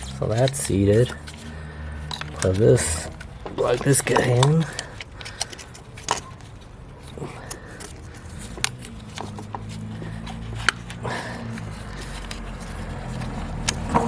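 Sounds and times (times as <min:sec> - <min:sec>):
low steady engine hum: 0:00.0 - 0:14.0
plastic clicks and knocks: 0:02.0 - 0:06.5, 0:07.4 - 0:11.0, 0:13.2 - 0:14.0.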